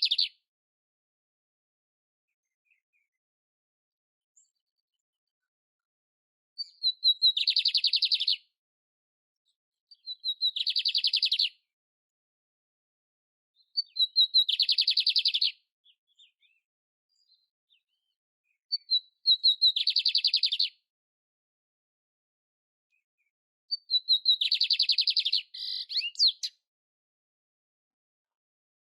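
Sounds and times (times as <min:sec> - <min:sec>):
canary singing with rattling trill: 0:00.0 - 0:00.4, 0:06.6 - 0:08.5, 0:10.0 - 0:11.6, 0:13.6 - 0:16.6, 0:18.7 - 0:20.8, 0:23.7 - 0:26.6.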